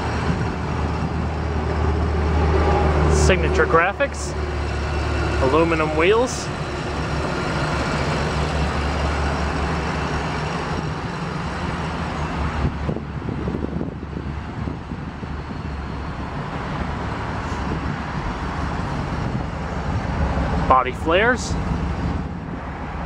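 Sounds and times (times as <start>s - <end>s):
engine idling: 0.0s - 16.2s.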